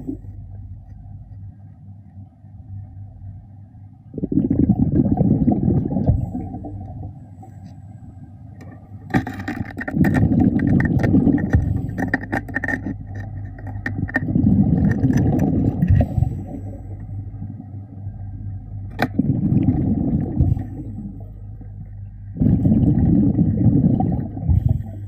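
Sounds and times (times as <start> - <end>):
steady low hum: 0.0 - 25.0
diver's breath bubbling underwater: 4.2 - 7.1, 14.0 - 17.0, 19.1 - 21.6, 22.3 - 25.0.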